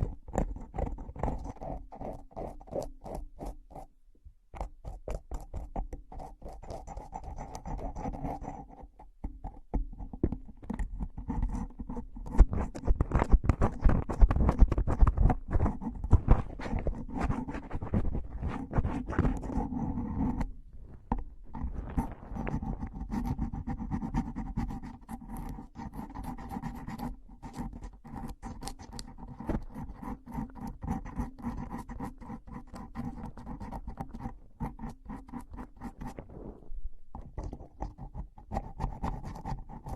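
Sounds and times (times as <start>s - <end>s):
rapid scratching and crackling: 11.0s - 39.9s.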